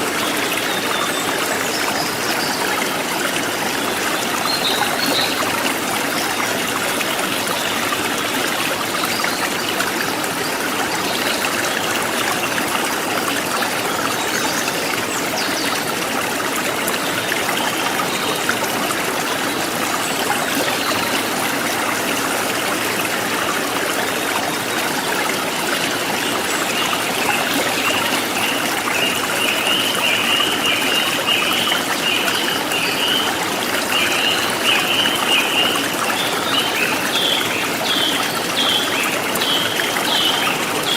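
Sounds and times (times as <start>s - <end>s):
river water flowing over stones: 0.0s - 40.9s.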